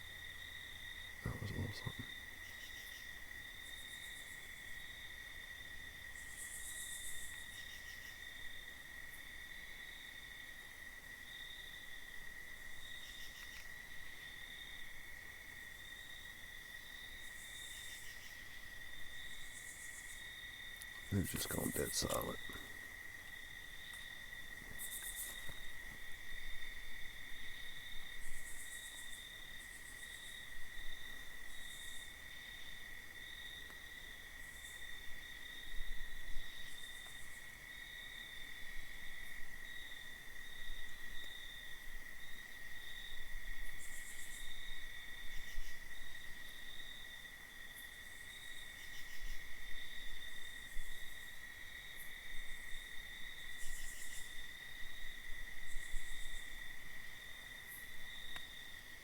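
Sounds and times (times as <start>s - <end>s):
insects trilling: 0.0s - 43.2s.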